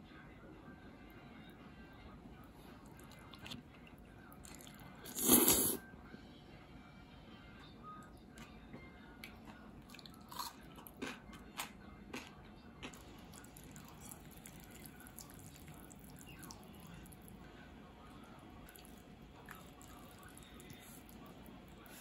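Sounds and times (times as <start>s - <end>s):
soft chewing: 2.4s - 6.2s, 7.6s - 22.0s
crunching of pickled radish: 9.3s - 13.0s.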